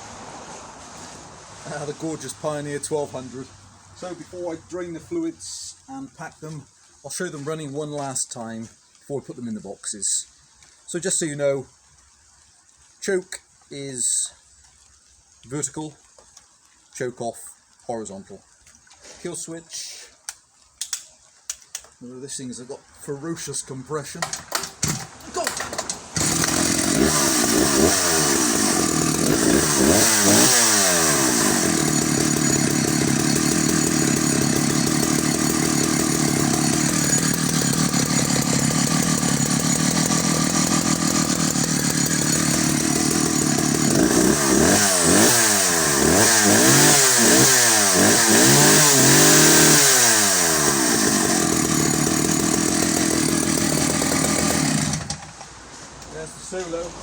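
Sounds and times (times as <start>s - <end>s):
chainsaw revving: 24.2s - 55.4s.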